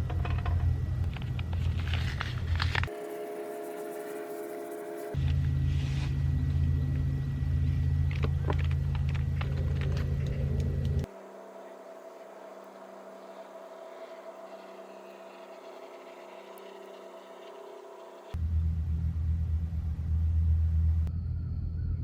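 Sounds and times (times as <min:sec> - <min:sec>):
quiet steady hum: 0:00.0 - 0:22.0
loud low rumble: 0:18.4 - 0:22.0.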